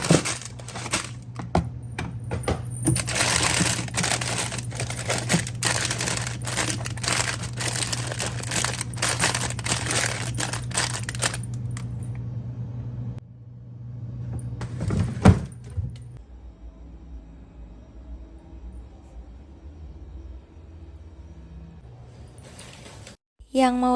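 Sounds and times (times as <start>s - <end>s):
small hard items clattering: 0.0s - 1.6s, 2.2s - 12.0s
steady low hum: 0.0s - 14.9s.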